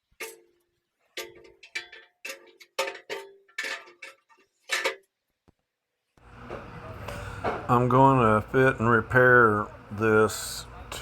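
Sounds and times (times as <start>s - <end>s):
metal clanking on steel: 0.0s - 5.1s.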